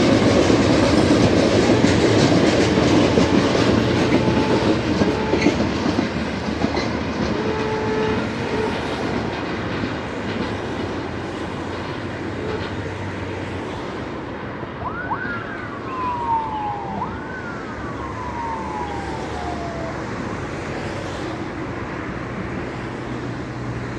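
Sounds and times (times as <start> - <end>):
road traffic rumble: 0.0 - 23.9
siren wailing: 2.6 - 5.6, 14.8 - 20.9.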